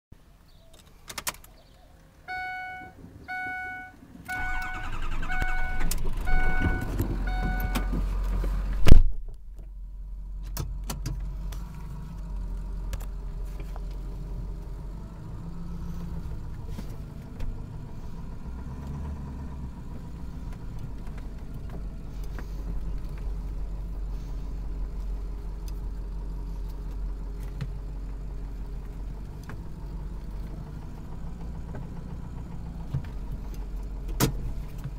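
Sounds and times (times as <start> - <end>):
diesel engine cranking: 0.8 - 9.0, 10.2 - 34.9
diesel engine idling: 1.6 - 8.9, 9.7 - 34.9
vehicle warning chime: 2.3 - 8.0.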